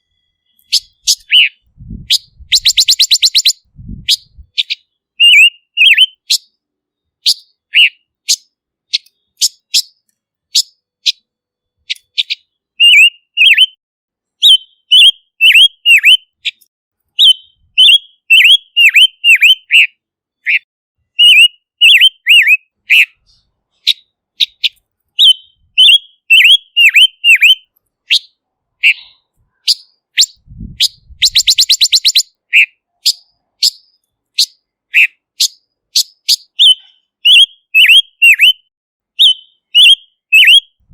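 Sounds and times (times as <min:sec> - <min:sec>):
bird rattling trill: 0:02.2 - 0:03.6, 0:30.2 - 0:32.2.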